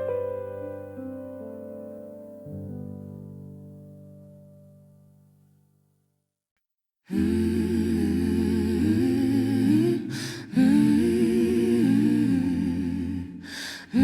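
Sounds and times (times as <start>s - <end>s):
short breath: 13.4s - 14.0s.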